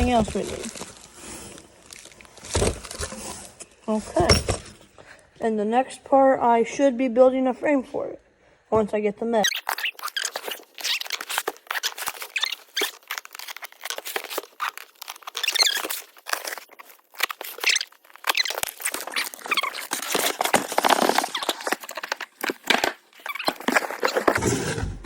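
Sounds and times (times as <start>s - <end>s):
packaging rustling and crinkling: 0.0s - 3.8s, 9.5s - 24.7s
small squeaks: 9.4s - 24.4s.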